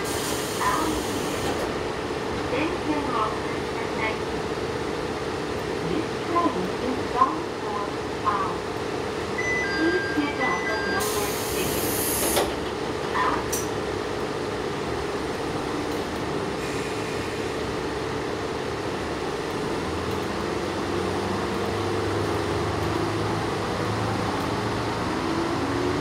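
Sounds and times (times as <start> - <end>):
diesel engine drone: 13.0 - 26.0.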